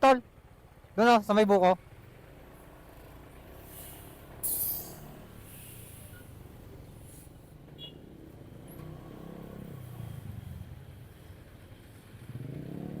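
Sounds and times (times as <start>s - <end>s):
motorcycle engine at low revs: 0.3s - 13.0s.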